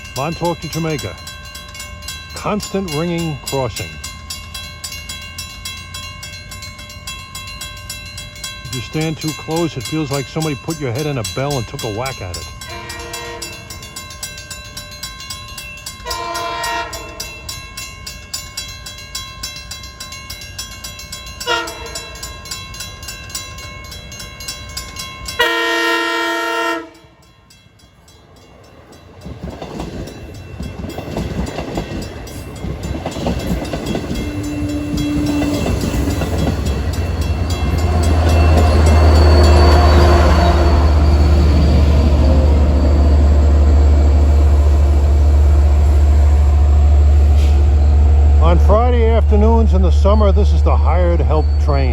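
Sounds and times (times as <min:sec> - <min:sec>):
crossing bell ringing: 0:00.0 - 0:51.9
train rumble: 0:00.0 - 0:51.9
locomotive air horn blasts: 0:12.7 - 0:13.6, 0:16.1 - 0:17.2, 0:21.5 - 0:22.0, 0:25.4 - 0:27.2.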